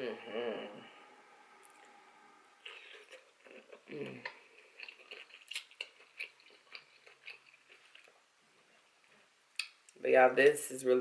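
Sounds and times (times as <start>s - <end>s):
person chewing food: 2.6s - 10.0s.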